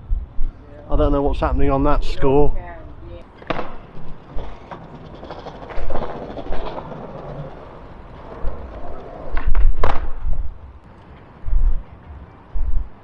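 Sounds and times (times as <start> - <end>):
steady outdoor noise: 0.0 - 13.0
wind buffeting microphone: 0.0 - 13.0.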